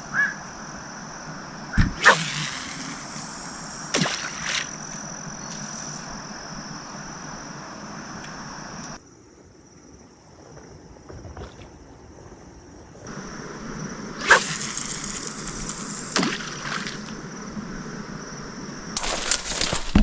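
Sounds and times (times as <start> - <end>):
background hiss: 0.0 - 11.0, 12.5 - 20.0
night insects chirring: 0.0 - 20.0.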